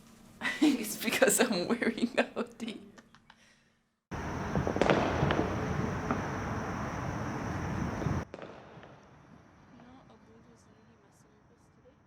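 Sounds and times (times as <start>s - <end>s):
fireworks crackling: 0.0s - 2.0s, 4.1s - 10.1s
firework bangs: 4.1s - 10.0s.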